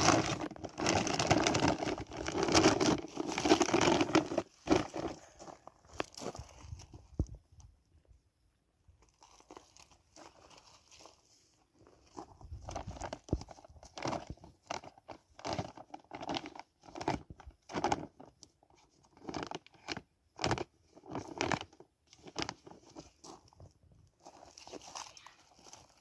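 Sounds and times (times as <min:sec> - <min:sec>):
dry plant material tearing: 0:00.0 - 0:05.4.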